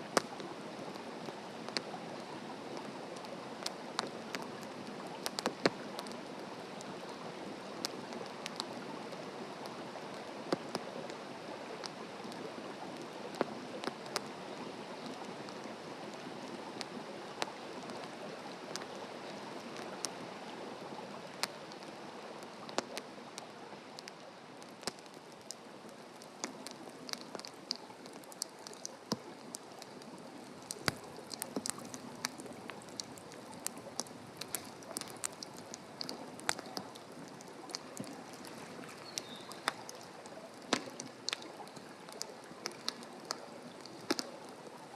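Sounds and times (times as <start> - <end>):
wood fire crackling and popping: 0.0 - 8.9, 21.2 - 44.9.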